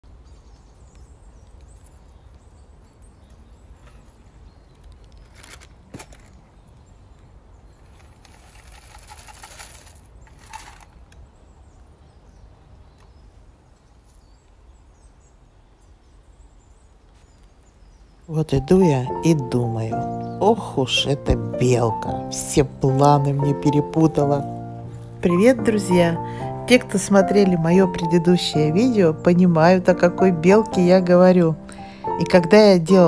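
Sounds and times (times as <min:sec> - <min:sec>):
rustling: 0:03.7 - 0:06.6, 0:07.8 - 0:11.2.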